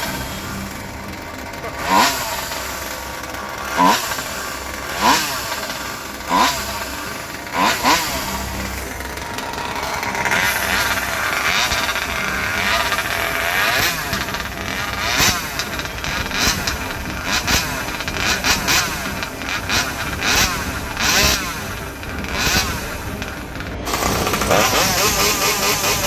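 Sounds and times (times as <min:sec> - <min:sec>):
chainsaw engine revving: 0:00.0 - 0:26.0.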